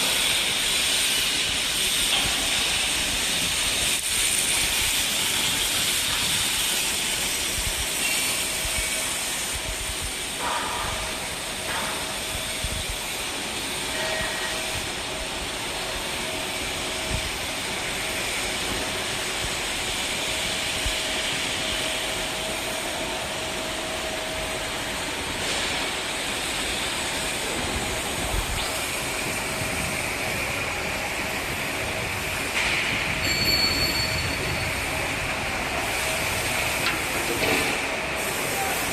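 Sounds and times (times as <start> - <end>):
machinery hissing: 0.0 - 38.9.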